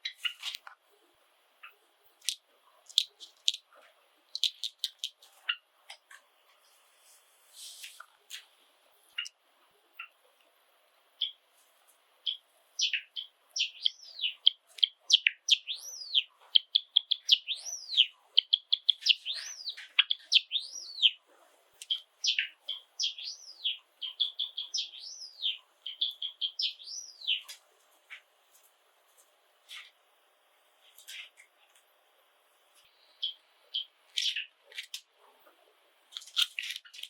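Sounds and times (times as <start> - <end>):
sparrow singing clicks and whistles: 4.3 - 5.6, 12.2 - 21.2, 21.8 - 27.6, 32.8 - 34.5.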